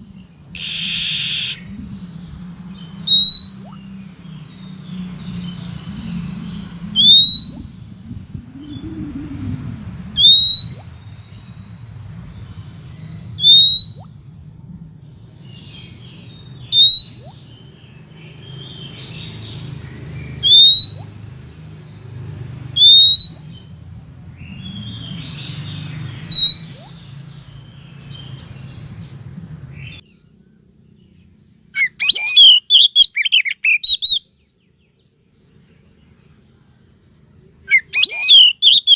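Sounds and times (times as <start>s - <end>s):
bird quick varied chirps: 0.5s - 1.8s, 2.9s - 3.9s, 5.1s - 9.6s, 15.6s - 17.7s, 18.3s - 21.2s, 24.4s - 27.2s, 31.2s - 34.3s, 37.6s - 38.9s
bird rising whistle: 0.6s - 1.7s, 3.0s - 3.8s, 7.0s - 7.8s, 10.2s - 10.9s, 13.4s - 14.2s, 16.7s - 17.4s, 20.4s - 21.2s, 22.8s - 23.5s, 26.3s - 27.0s, 31.8s - 34.2s, 37.7s - 38.9s.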